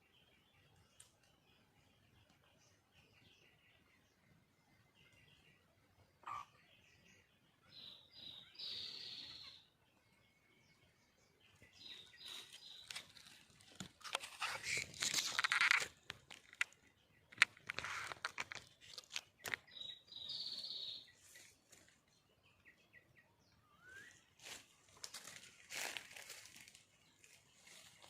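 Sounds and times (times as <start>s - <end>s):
high bird chirp: 6.2s - 9.8s, 11.3s - 16.0s, 16.7s - 21.6s, 22.3s - 26.5s
rustling: 12.2s - 19.6s.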